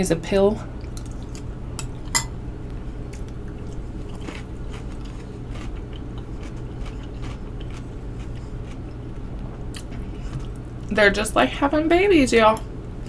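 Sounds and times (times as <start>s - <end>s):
steady low hum: 0.0s - 13.0s
person chewing food: 0.8s - 2.1s, 3.0s - 10.9s.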